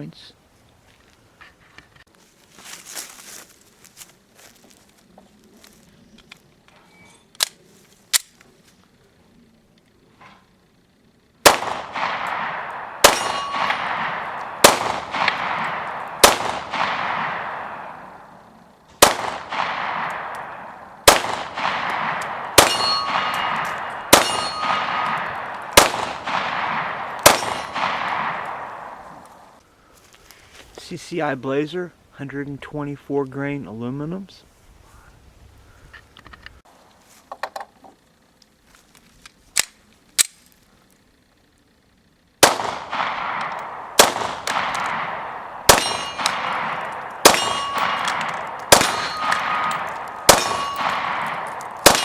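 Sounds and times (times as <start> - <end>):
pistol shots echoing: 11.4 - 29.6, 42.4 - 52.0.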